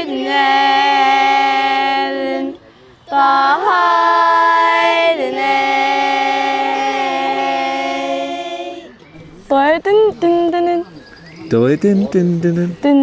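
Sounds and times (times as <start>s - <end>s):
girls' choir singing in harmony: 0.0s - 9.0s.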